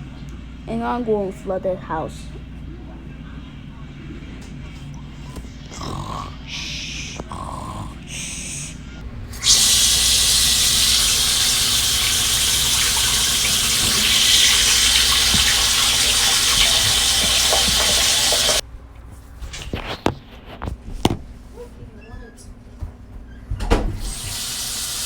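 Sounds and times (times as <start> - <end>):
water gushing from a tap: 9.1 - 18.6, 24.0 - 25.0.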